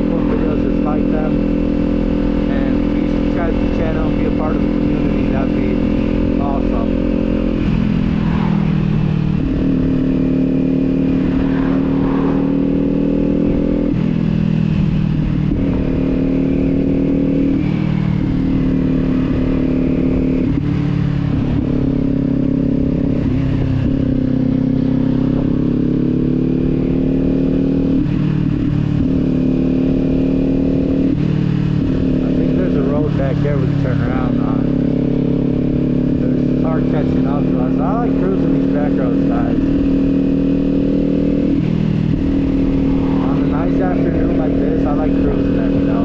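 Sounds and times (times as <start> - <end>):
motorcycle engine revving: 0.0 - 46.0
wind rumble: 4.0 - 26.2, 39.4 - 46.0.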